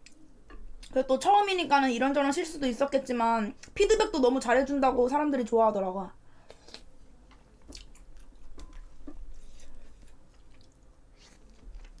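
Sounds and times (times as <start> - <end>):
chewing food: 6.5 - 12.0.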